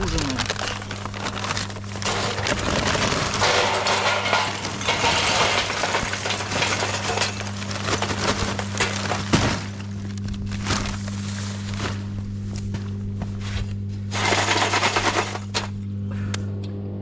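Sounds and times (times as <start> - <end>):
metal charcoal grill clattering: 1.8 - 9.3.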